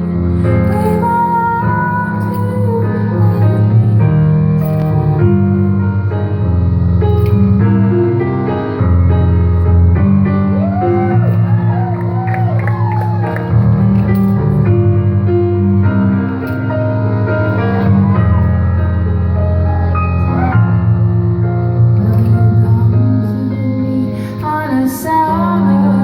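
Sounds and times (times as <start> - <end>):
sustained keyboard chords: 0.0 - 26.0
heavy bass line: 2.9 - 23.2.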